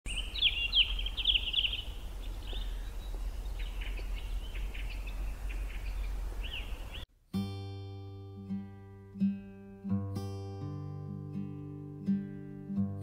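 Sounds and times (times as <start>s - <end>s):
songbirds chirping: 0.1s - 7.1s.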